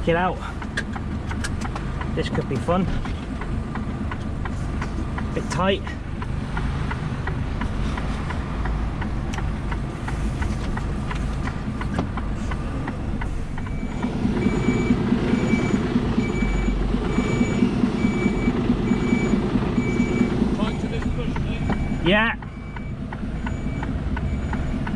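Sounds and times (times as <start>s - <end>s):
lorry diesel engine running: 0.0s - 24.9s
reversing alarm beeping: 13.6s - 24.9s.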